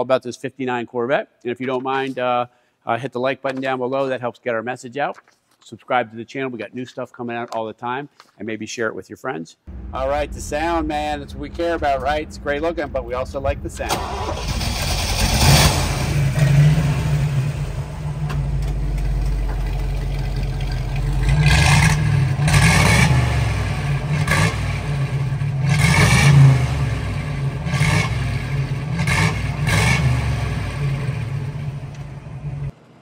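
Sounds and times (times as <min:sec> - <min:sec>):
car engine idling and revving: 0:09.7 - 0:32.8.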